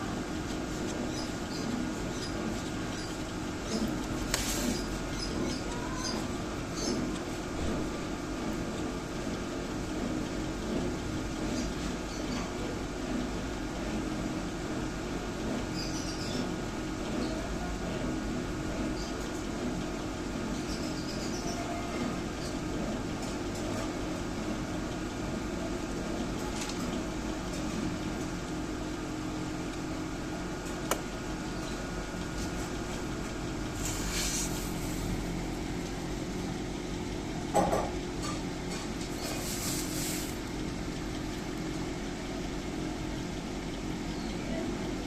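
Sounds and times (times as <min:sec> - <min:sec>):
incubator fan hum: 0:00.0 - 0:45.0
sharp click: 0:30.9 - 0:31.1.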